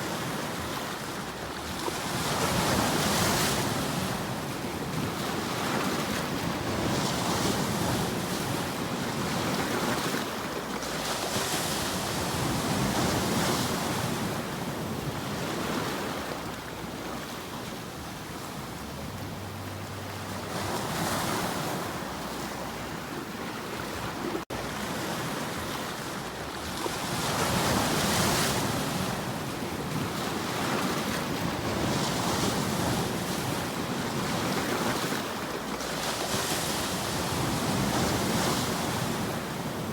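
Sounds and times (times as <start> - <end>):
sea waves washing in: 0.0 - 39.9
wind: 0.0 - 39.9.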